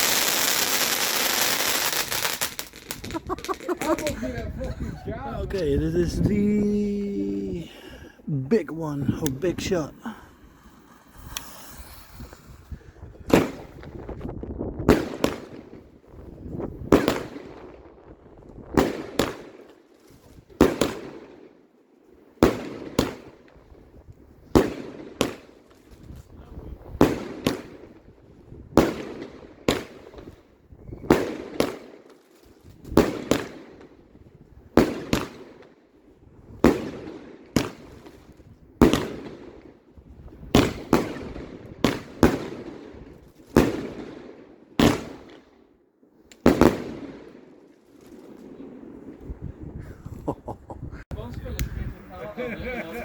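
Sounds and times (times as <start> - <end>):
fireworks banging with echo: 0.0 - 4.3, 8.5 - 14.1.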